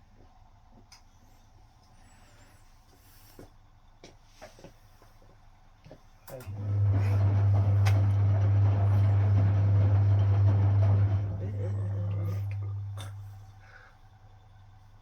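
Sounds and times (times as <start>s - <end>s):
washing machine motor hum: 6.2s - 15.0s.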